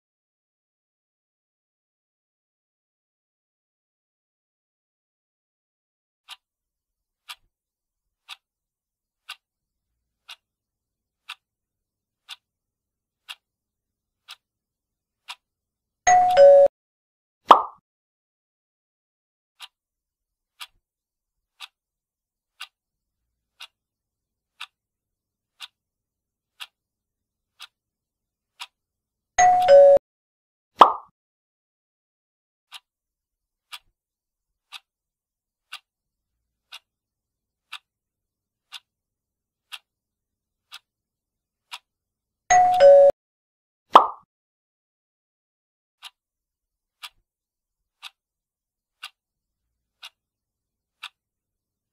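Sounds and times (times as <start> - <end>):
clock ticking: 6.3 - 6.5, 7.2 - 7.5, 8.2 - 8.5, 9.2 - 9.5, 10.2 - 10.5, 11.2 - 11.4, 12.2 - 12.5, 13.2 - 13.4, 14.2 - 14.4, 15.2 - 15.5, 16.1 - 16.7, 20.5 - 20.8, 21.5 - 21.8, 22.6 - 22.8, 23.5 - 23.8, 24.5 - 24.8, 25.5 - 25.8, 26.5 - 26.8, 27.5 - 27.8, 28.5 - 28.8, 29.4 - 30.0, 33.6 - 33.9, 34.6 - 34.9, 35.6 - 35.9, 36.6 - 36.9, 37.6 - 37.9, 38.6 - 38.9, 39.6 - 39.9, 40.6 - 40.9, 41.7 - 41.9, 42.5 - 43.1, 47.0 - 47.2, 48.0 - 48.2, 48.9 - 49.2, 49.9 - 50.2, 50.9 - 51.2.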